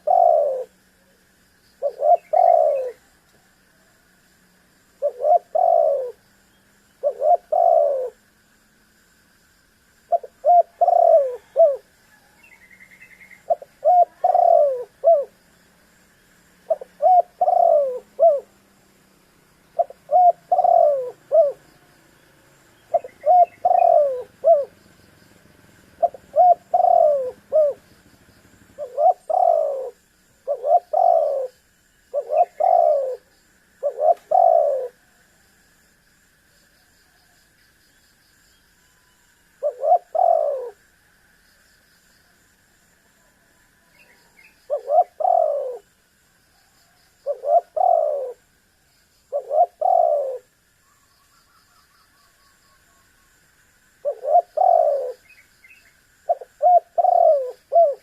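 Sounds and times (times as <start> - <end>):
dove cooing: 0.0 - 1.2, 1.8 - 3.1, 5.0 - 6.2, 7.0 - 8.2, 10.1 - 15.4, 16.6 - 18.6, 19.7 - 21.9, 22.8 - 35.2, 39.6 - 40.9, 44.0 - 45.9, 47.2 - 48.5, 49.3 - 50.6, 54.0 - 55.4, 56.3 - 58.0.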